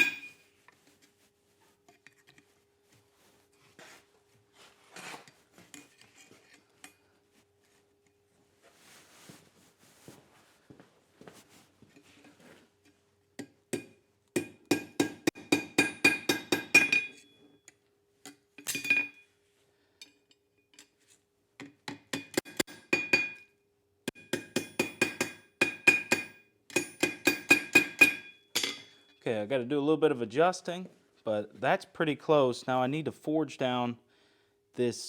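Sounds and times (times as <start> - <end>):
hammer ringing on anvil: 0.0 - 0.4, 13.8 - 17.4, 22.5 - 23.5, 24.2 - 29.2.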